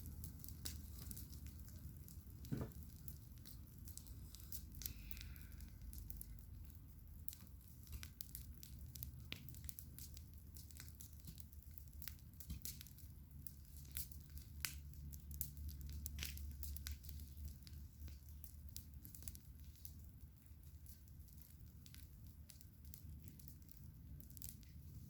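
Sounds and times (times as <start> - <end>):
campfire crackling and popping: 0.0 - 25.0
low steady rumble: 11.4 - 25.0.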